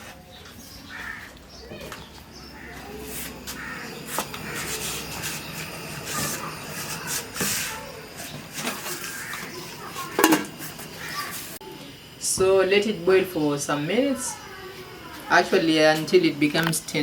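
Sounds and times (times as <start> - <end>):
steady hiss: 2.8 - 17.0
cooking pot and utensils knocking: 8.3 - 10.8.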